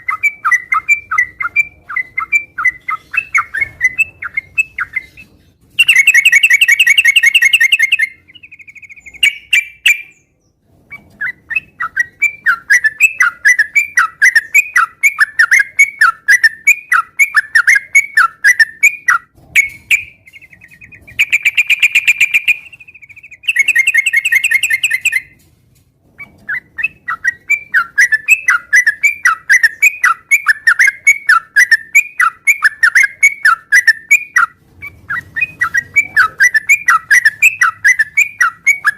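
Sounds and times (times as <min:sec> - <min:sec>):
bird whistled notes: 0:00.0 - 0:10.2, 0:10.9 - 0:25.4, 0:26.2 - 0:38.9
bird buzzy trills: 0:05.8 - 0:10.2.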